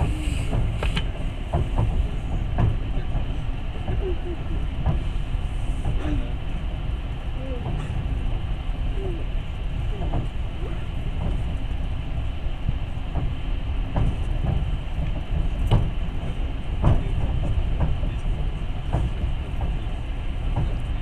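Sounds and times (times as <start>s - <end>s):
train wheels rumbling on rails: 0.0s - 21.0s
knocks and clacks: 0.5s - 4.1s, 13.1s - 21.0s.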